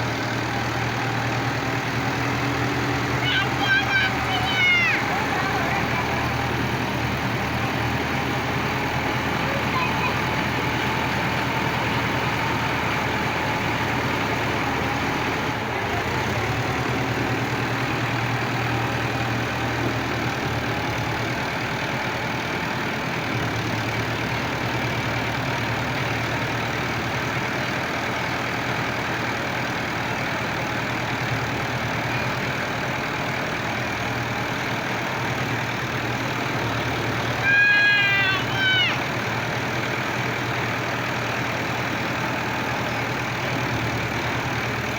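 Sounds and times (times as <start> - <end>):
tractor engines running: 0.0 - 44.9.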